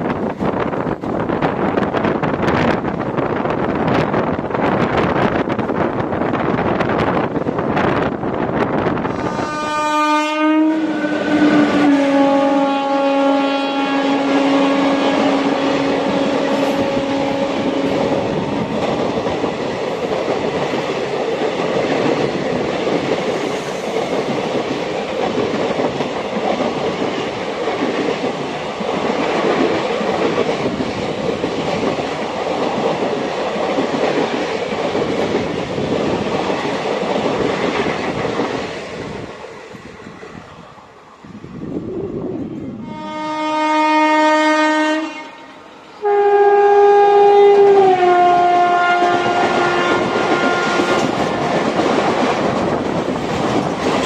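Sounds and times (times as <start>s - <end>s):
train rumbling on rails: 0.0s - 54.0s
train horn: 9.0s - 18.5s, 42.8s - 51.4s.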